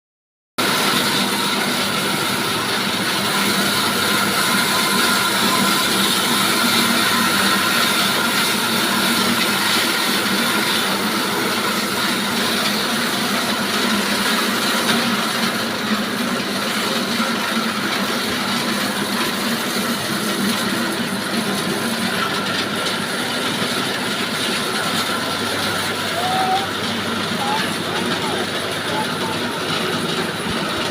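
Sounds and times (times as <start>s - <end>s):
sawmill sawing timber: 0.6s - 30.9s.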